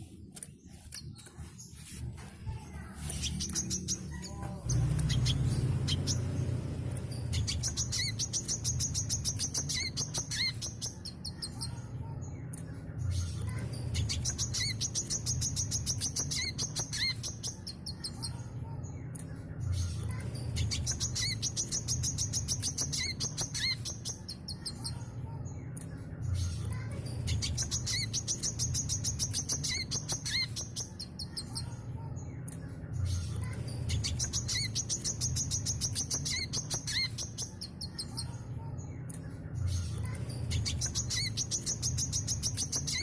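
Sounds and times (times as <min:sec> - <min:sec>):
sunbird twittering song: 0:03.0 - 0:11.8, 0:13.8 - 0:19.0, 0:20.4 - 0:25.0, 0:27.2 - 0:32.3, 0:33.8 - 0:38.4, 0:40.4 - 0:43.0.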